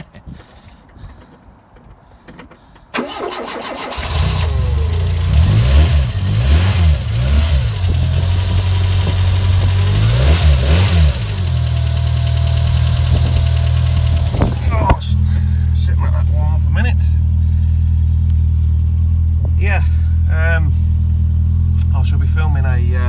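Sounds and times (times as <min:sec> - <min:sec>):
engine cranking: 0:02.9 - 0:23.0
car engine revving and idling: 0:03.9 - 0:23.0.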